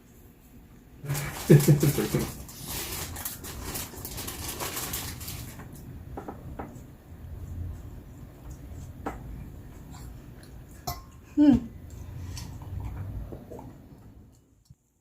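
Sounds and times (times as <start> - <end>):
food and utensils rustling and scraping: 0.0 - 11.3.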